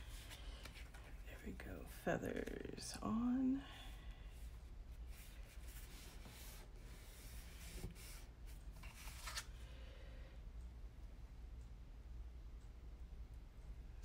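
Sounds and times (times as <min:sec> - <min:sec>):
paper rustling and sliding: 0:05.2 - 0:09.5.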